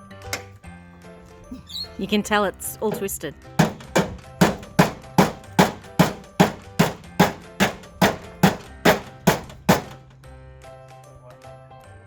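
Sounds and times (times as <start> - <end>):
background music: 0.0 - 12.0
sharp strikes: 2.9 - 10.0.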